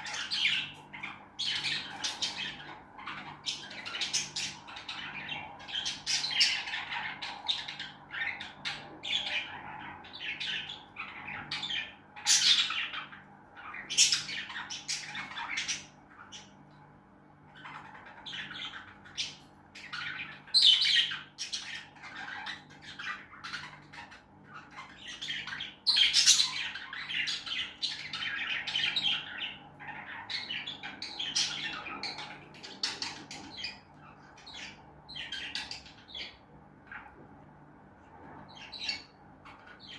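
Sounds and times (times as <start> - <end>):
birds chirping and squawking: 0.0 - 39.9.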